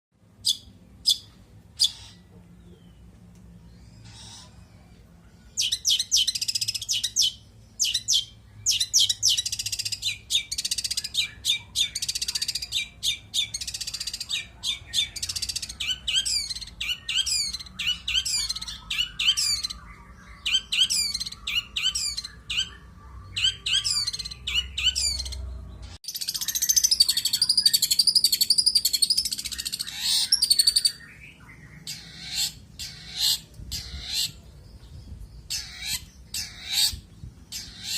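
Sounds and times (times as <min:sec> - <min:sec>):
shrike singing: 0:26.1 - 0:34.3.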